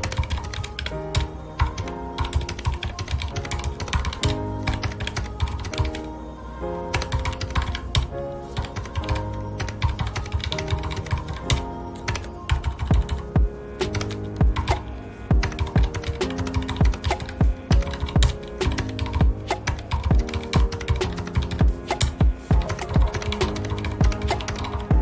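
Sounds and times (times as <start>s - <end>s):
mechanical keyboard typing: 0.0s - 6.0s, 15.4s - 24.9s
soft background music: 0.0s - 25.0s.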